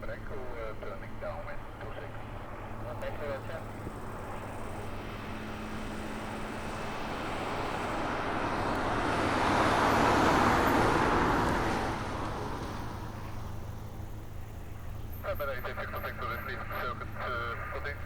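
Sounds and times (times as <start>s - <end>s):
vehicle passing by: 4.0s - 18.0s.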